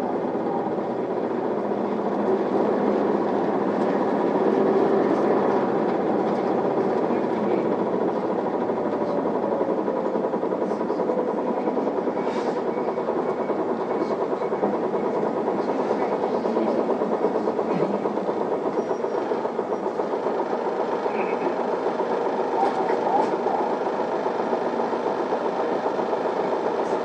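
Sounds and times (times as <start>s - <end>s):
bus engine and road noise: 0.0s - 23.7s.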